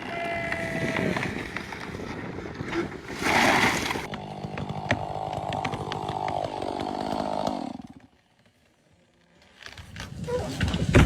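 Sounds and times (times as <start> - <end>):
chainsaw engine running: 4.1 - 8.6.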